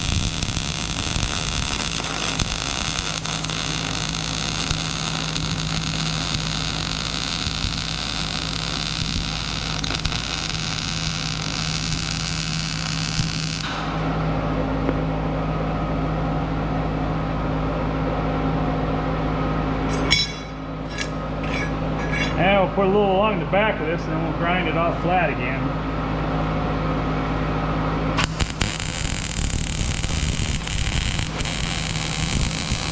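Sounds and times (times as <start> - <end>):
arc welding crackling hiss: 0.0 - 13.8, 28.2 - 32.9
low steady hum: 19.7 - 22.8.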